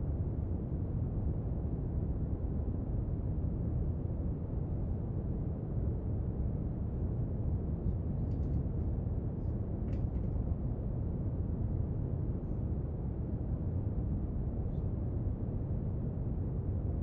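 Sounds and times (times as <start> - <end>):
faint small clicks: 8.3 - 8.9.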